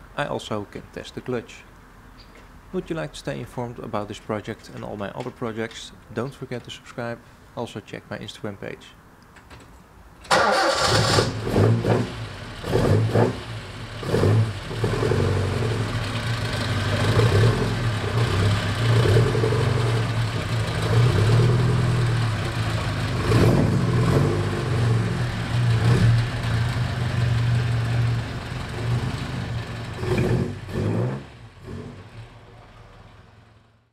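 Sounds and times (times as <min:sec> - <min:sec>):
car engine revving: 0:10.3 - 0:33.5.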